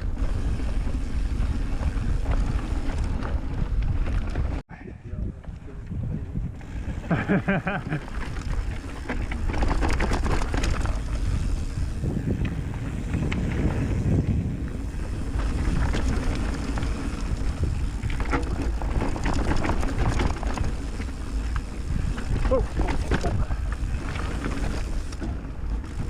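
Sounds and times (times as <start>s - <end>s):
tyres rumbling on dirt: 0.0s - 4.6s, 6.8s - 26.0s
wind buffeting microphone: 0.0s - 26.0s
bike clattering over bumps: 7.3s - 26.0s.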